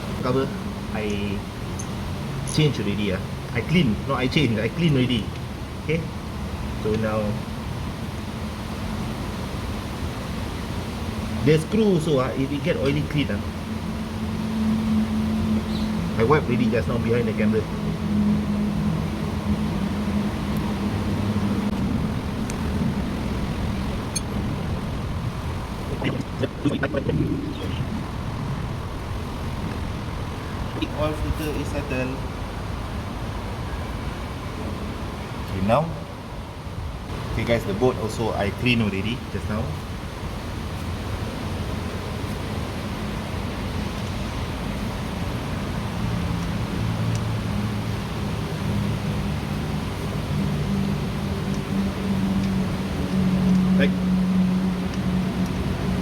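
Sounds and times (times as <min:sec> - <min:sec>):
background rush: 0:00.0 - 0:56.0
low motor hum: 0:08.2 - 0:32.9, 0:44.3 - 0:56.0.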